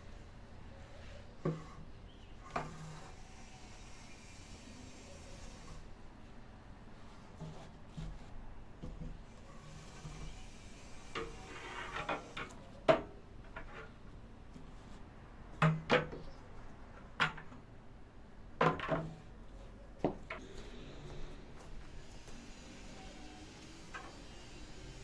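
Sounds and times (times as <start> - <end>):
objects knocking and clattering: 18.6 - 19.2.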